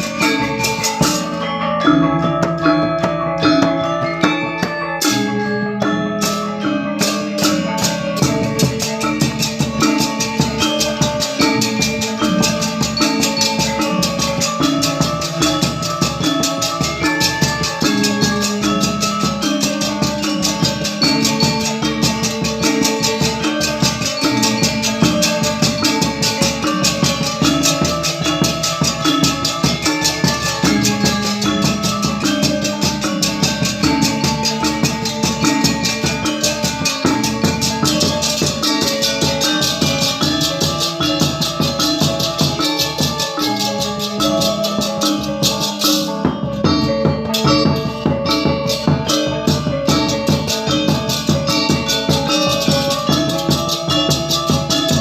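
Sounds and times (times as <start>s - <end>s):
gamelan ensemble playing: 0.0s - 55.0s.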